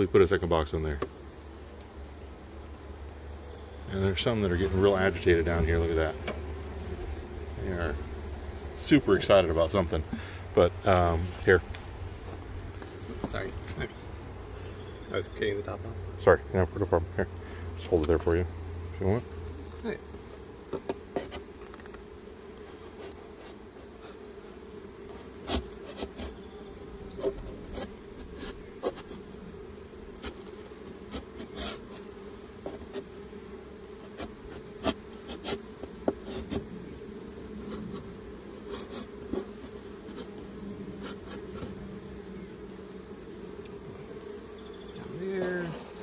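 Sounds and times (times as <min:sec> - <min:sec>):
bees buzzing: 0:00.0 - 0:46.0
clicks and knocks of hive parts: 0:00.9 - 0:01.2, 0:06.2 - 0:06.5, 0:11.6 - 0:13.6, 0:17.8 - 0:18.4, 0:19.6 - 0:24.3, 0:25.4 - 0:26.4, 0:27.1 - 0:29.3, 0:30.1 - 0:33.2, 0:33.9 - 0:36.8, 0:37.6 - 0:41.8.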